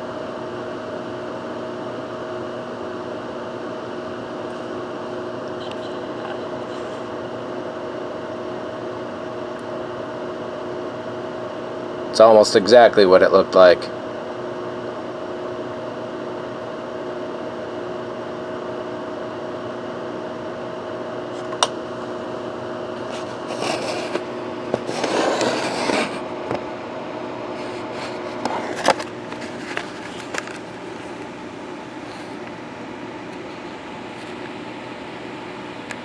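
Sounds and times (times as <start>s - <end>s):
fan or air conditioner hum: 0.0s - 36.0s
scraping and rustling handling noise: 23.0s - 26.2s, 27.6s - 31.2s.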